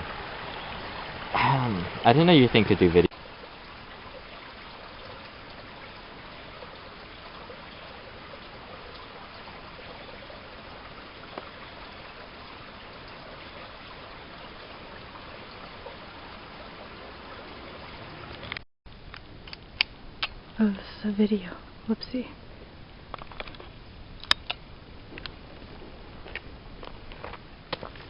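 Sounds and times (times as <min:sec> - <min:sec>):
stream water rushing: 0:00.0 - 0:18.6.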